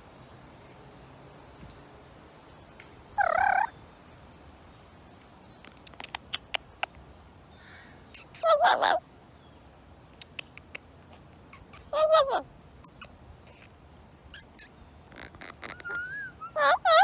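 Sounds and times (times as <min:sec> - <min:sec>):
parrot calling loudly: 0:03.2 - 0:03.7, 0:08.2 - 0:09.0, 0:11.5 - 0:13.7, 0:14.3 - 0:17.0.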